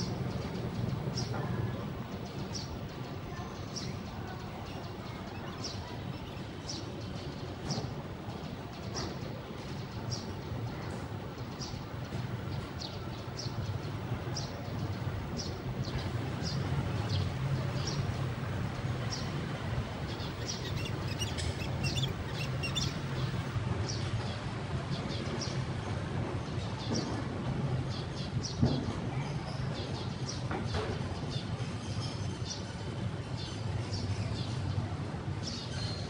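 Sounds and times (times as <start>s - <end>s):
small birds chirping: 0.0s - 24.3s
steady low rumble: 0.0s - 24.6s.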